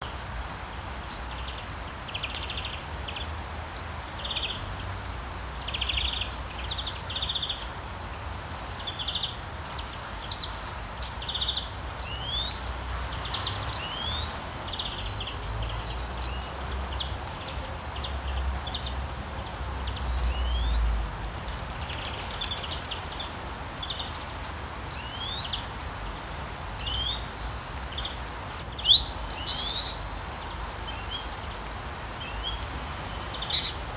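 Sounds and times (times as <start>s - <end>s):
small birds chirping: 1.1s - 7.9s, 8.7s - 33.9s.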